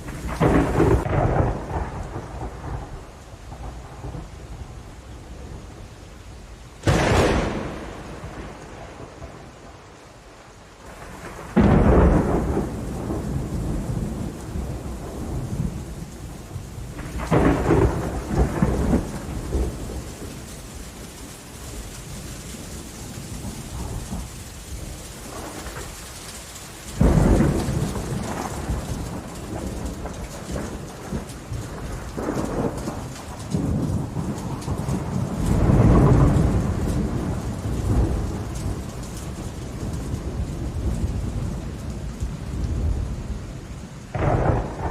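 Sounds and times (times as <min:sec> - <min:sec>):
thunder clap: 0:00.0 - 0:04.3, 0:06.8 - 0:09.7, 0:10.9 - 0:16.1, 0:16.9 - 0:20.6, 0:27.0 - 0:43.2, 0:44.1 - 0:44.9
rumbling thunder: 0:00.0 - 0:05.6, 0:06.8 - 0:09.9, 0:10.9 - 0:26.2, 0:26.8 - 0:44.9
steady rain: 0:00.0 - 0:44.9.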